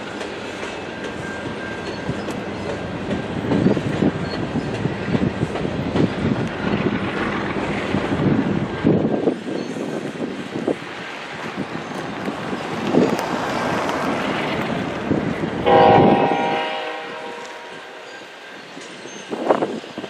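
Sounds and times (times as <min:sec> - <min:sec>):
freight train rumbling past: 0:00.0 - 0:20.0.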